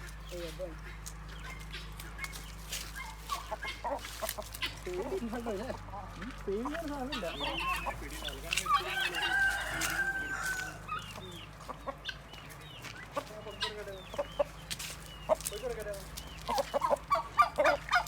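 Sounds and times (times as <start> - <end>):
chickens clucking and chirping: 0.0 - 18.0
rooster crowing: 8.6 - 11.2.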